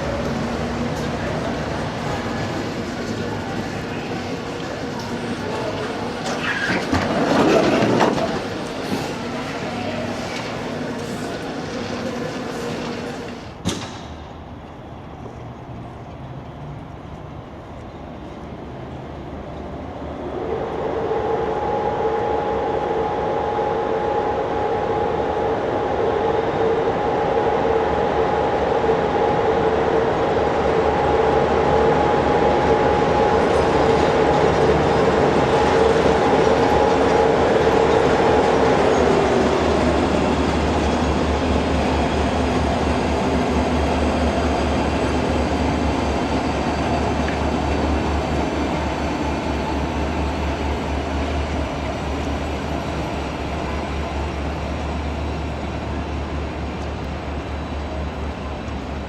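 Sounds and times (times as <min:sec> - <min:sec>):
locomotive running gear rumble: 0:00.0 - 0:13.6, 0:30.8 - 0:59.0.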